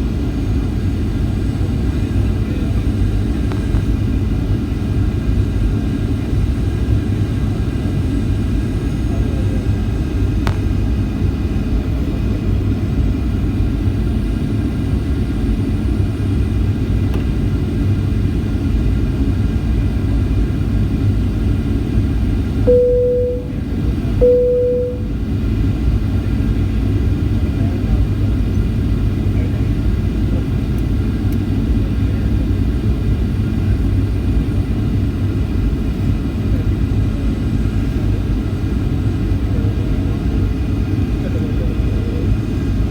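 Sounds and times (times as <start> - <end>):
airplane cabin rumble: 0.0 - 42.9
short chime tones: 22.7 - 23.6, 24.2 - 25.1.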